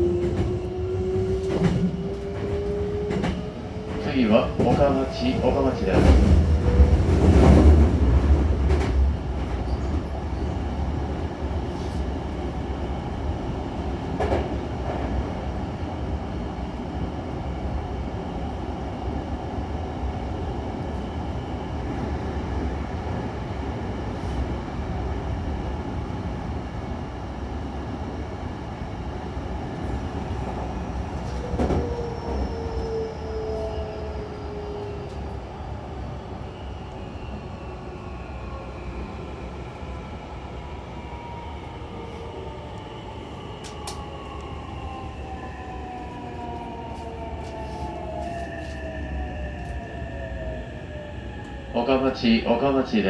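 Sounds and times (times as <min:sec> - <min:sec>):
train wheels rumbling on rails: 0:00.0 - 0:17.2, 0:29.5 - 0:35.4.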